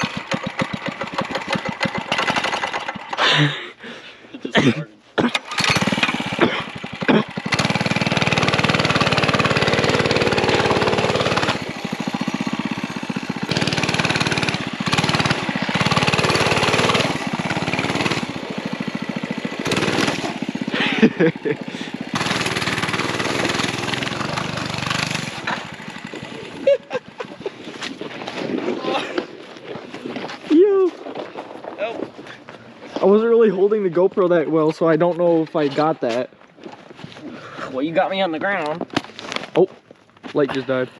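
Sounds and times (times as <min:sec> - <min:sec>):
small bike engine revving: 0:00.0 - 0:03.6, 0:05.3 - 0:31.9.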